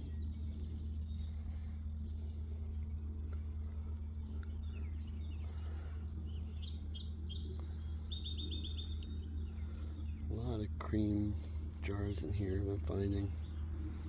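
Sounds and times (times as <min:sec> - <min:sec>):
low background rumble: 0:00.0 - 0:14.0
songbirds chirping: 0:00.0 - 0:14.0.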